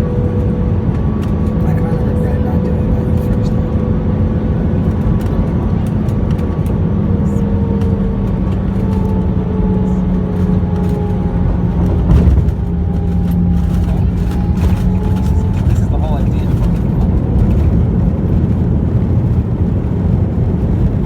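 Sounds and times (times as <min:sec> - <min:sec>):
jet engine whine: 0:00.0 - 0:21.0
low cabin rumble: 0:00.0 - 0:21.0
loud thump: 0:11.9 - 0:12.9.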